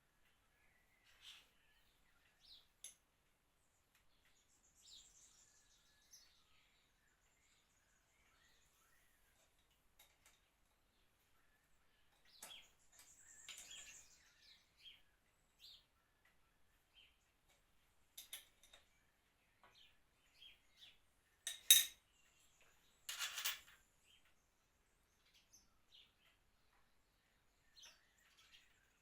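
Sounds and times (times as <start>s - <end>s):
metal tools clinking: 21.5s - 22.0s, 23.1s - 23.8s
metal parts clattering: 23.1s - 23.8s.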